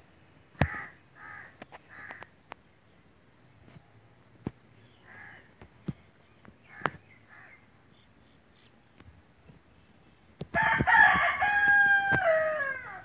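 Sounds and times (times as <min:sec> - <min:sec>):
faint bird call: 0:04.8 - 0:08.8.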